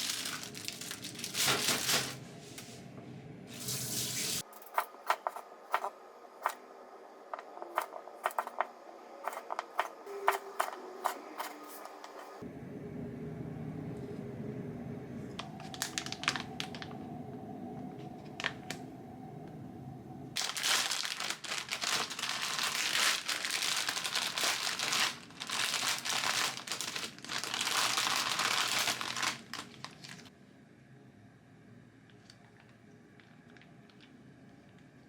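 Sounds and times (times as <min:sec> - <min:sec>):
packaging crinkling: 0:00.0 - 0:02.2, 0:15.4 - 0:17.0, 0:20.4 - 0:30.3
low steady hum: 0:00.0 - 0:35.0.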